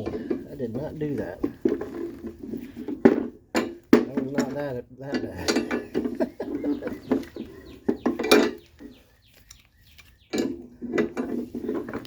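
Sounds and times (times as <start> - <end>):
metal tools clinking: 0.0 - 9.0.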